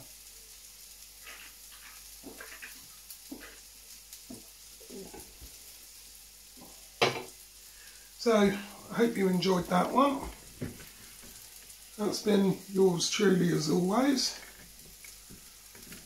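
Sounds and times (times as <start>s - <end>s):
stir-fry sizzling in a wok: 0.0s - 16.0s.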